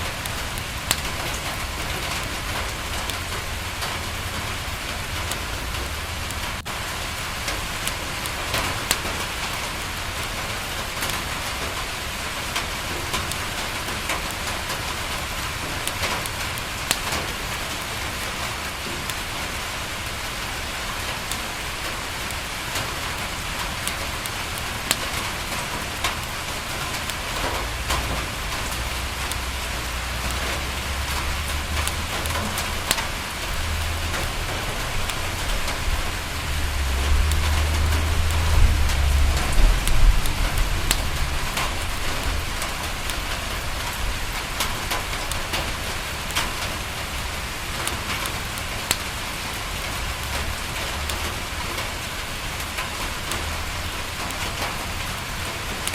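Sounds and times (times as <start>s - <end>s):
rain on a window: 0.0s - 55.9s
sharp raindrop ticks: 0.0s - 55.9s
low rumble: 35.4s - 42.7s.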